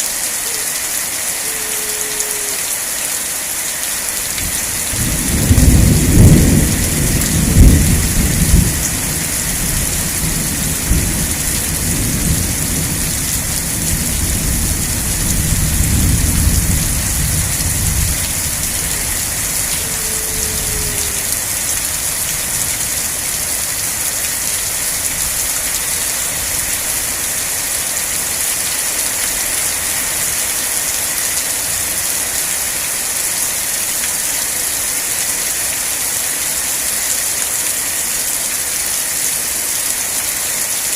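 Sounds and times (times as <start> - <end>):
heavy rain hissing: 0.0 - 40.9
rolling thunder rumble: 4.4 - 21.4.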